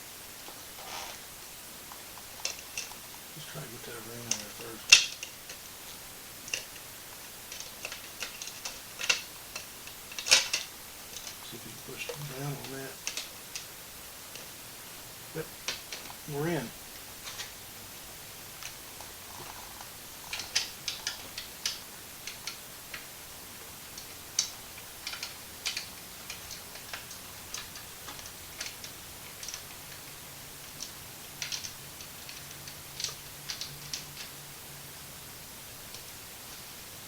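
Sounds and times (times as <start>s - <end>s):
light clicks and taps: 1.9s - 13.7s, 18.5s - 34.4s.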